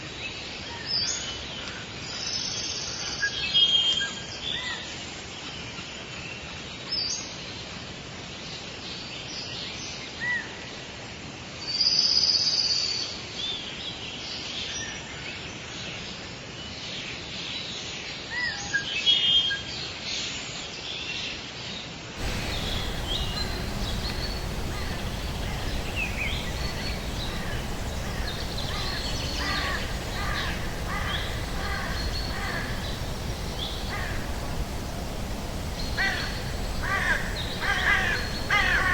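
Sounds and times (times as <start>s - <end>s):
background hiss: 22.2s - 38.9s
birds chirping and whistling: 22.2s - 38.9s.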